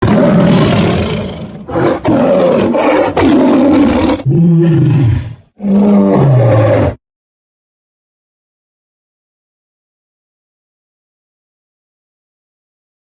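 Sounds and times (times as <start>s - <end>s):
tiger roaring: 0.0s - 7.0s.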